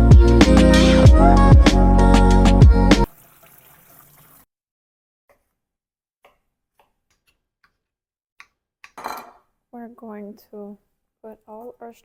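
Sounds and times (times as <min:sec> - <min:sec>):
background music with beat: 0:00.0 - 0:03.1.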